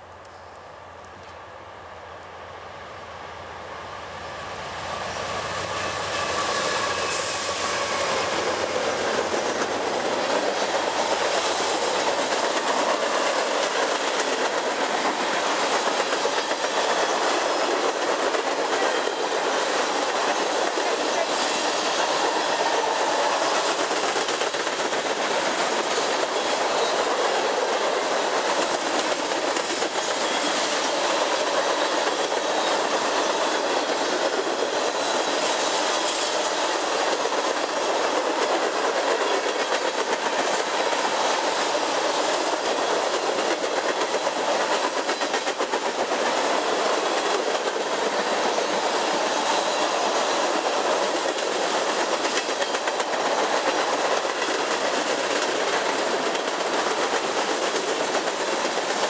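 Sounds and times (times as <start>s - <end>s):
steel wheels running on rails: 4.6s - 59.0s.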